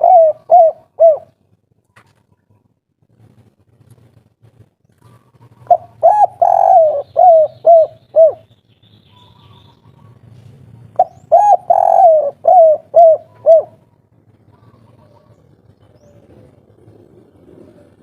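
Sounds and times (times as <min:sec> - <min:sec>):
dove cooing: 0:00.0 - 0:01.4, 0:05.0 - 0:08.5, 0:09.1 - 0:18.0.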